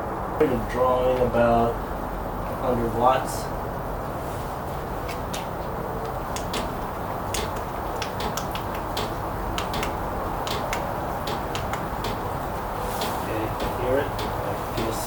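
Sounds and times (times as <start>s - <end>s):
heater blower fan: 0.0s - 15.0s
sharp clicks: 6.0s - 12.4s, 13.0s - 15.0s.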